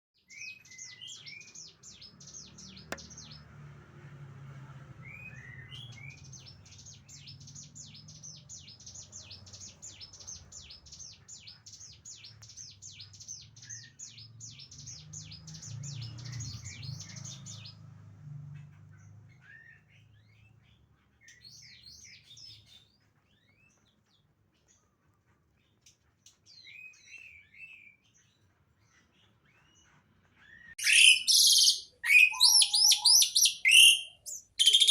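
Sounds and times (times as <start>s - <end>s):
songbird singing falling notes: 2.2s - 3.4s, 30.5s - 34.9s
bird slurred whistles: 30.8s - 34.9s.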